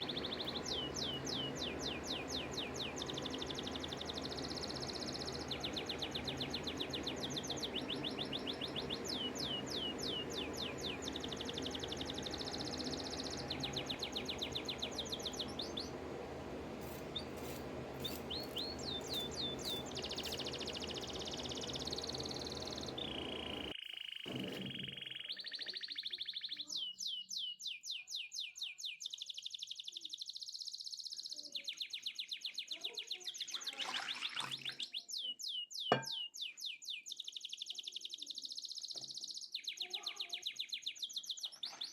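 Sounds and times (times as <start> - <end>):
low background hum: 0.0 - 23.8
bird chirps and whistles: 17.1 - 24.1.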